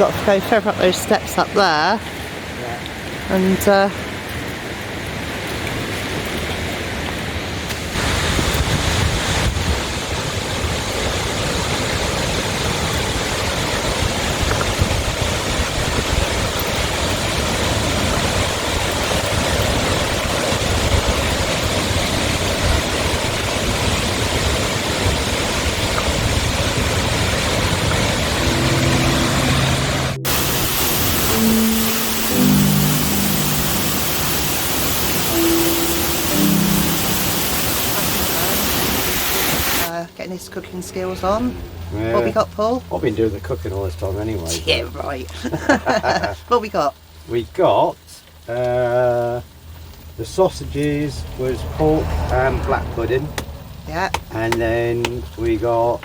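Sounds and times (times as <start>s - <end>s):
waterfall rushing: 0.0s - 40.0s, 48.5s - 56.0s.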